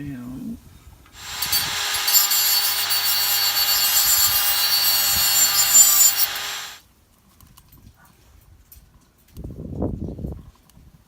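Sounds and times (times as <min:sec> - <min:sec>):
power tool grinding metal: 0:01.2 - 0:06.8.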